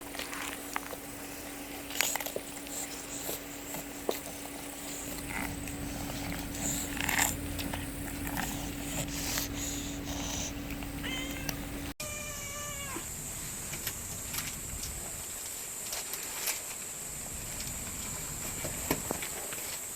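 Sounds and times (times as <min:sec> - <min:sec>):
cats hissing: 0:00.0 - 0:13.1
cat crying: 0:11.0 - 0:13.1.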